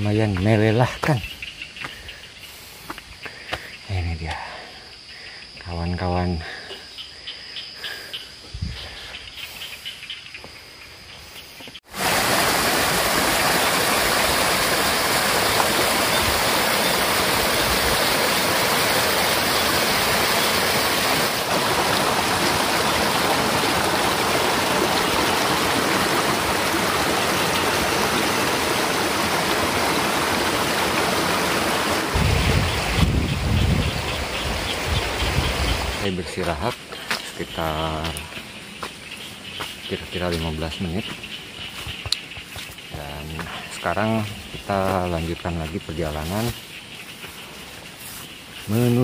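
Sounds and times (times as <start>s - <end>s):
faint insect chirping: 0.0s - 11.9s, 13.3s - 21.2s, 32.4s - 49.0s
stream water flowing: 11.9s - 36.0s.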